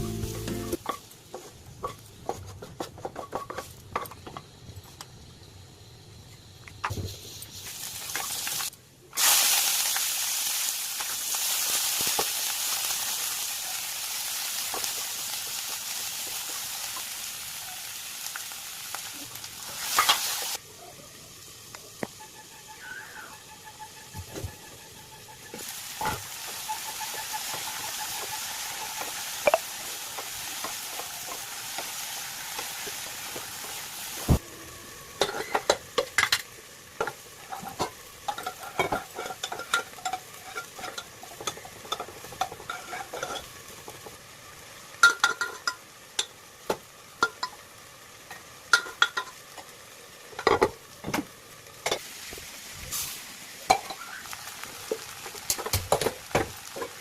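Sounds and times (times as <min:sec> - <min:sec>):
food sizzling in oil: 0:00.0 - 0:02.3, 0:05.2 - 0:57.0
utensil stirring and scraping pan: 0:37.0 - 0:44.1.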